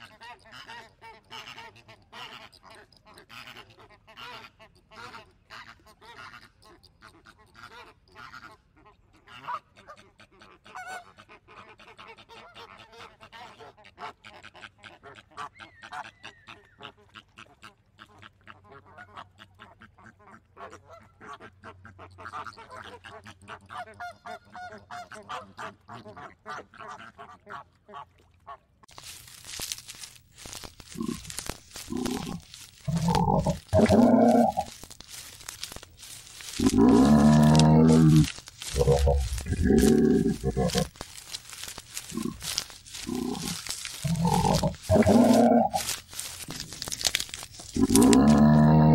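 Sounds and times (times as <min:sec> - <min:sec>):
flamingos honking and gabbling: 0:28.9 - 0:48.9.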